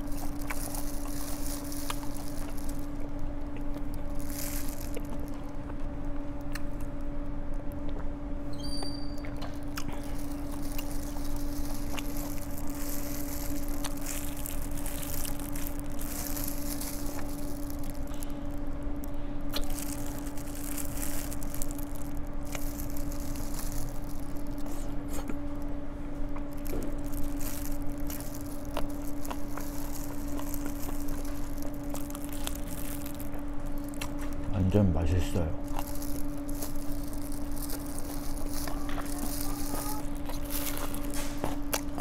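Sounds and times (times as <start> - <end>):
chewing and biting food: 0.0 - 42.0
steady hum: 0.0 - 42.0.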